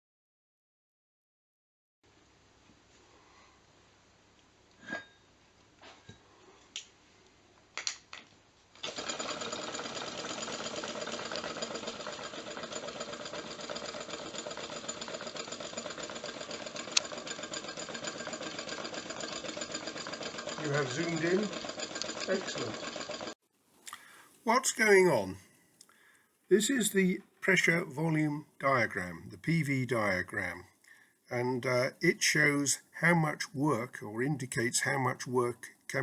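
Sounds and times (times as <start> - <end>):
engine rapid mechanical clatter: 8.8 - 23.4.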